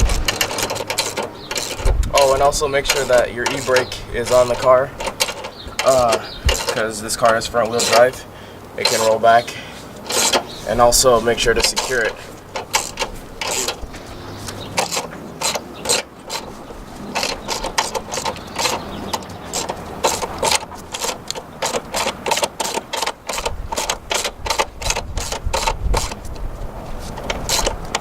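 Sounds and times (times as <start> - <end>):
ratchet wrench clicking: 0.0 - 9.3, 10.0 - 26.4, 27.1 - 28.0.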